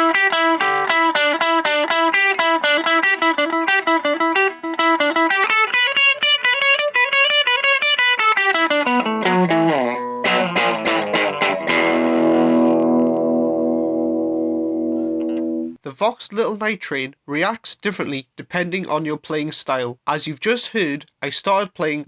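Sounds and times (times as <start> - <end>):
electric guitar through tube amp: 0.0 - 15.8.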